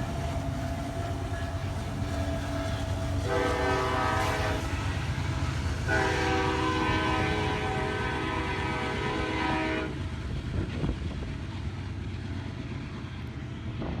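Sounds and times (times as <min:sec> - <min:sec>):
locomotive horn chord: 0:00.0 - 0:10.0
low rumble of passing train: 0:00.0 - 0:14.0.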